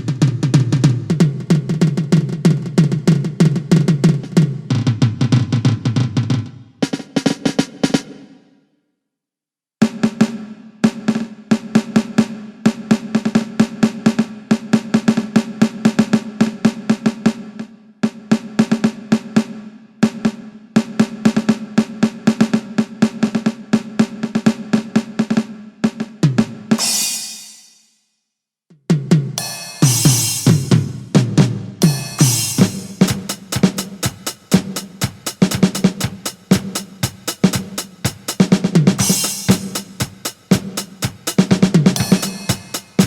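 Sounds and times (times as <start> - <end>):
electronic drum snare roll: 26.0 - 27.8, 29.1 - 43.0
cymbal crash: 26.8 - 27.9, 29.4 - 31.2, 31.8 - 35.3, 39.0 - 40.2, 42.0 - 43.0.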